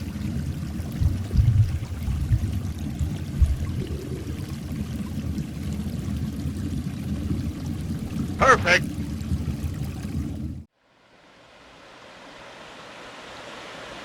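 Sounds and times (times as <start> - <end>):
stream water rushing: 0.0 - 10.2.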